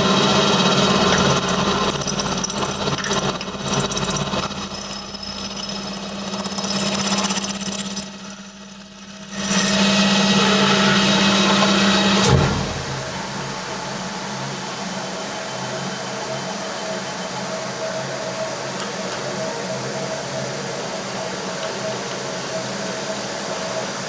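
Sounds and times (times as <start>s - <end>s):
lathe cutting noise: 0.0s - 13.7s
low machine tone: 0.0s - 24.0s.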